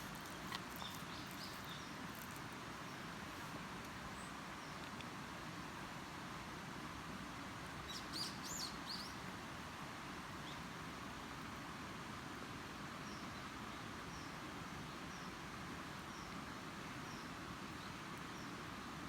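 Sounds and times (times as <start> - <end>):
bird chirping: 0.0 - 3.0
outdoor background hiss: 0.0 - 19.0.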